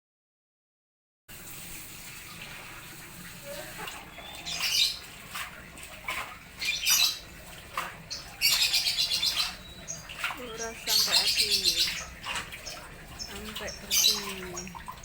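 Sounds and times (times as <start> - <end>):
faint rushing water: 1.3 - 15.0
birds chirping and calling: 3.4 - 15.0.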